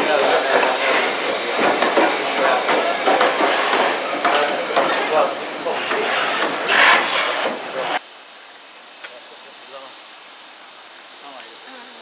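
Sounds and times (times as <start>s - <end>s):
people chattering: 0.0s - 8.0s
railway noise: 0.0s - 11.6s.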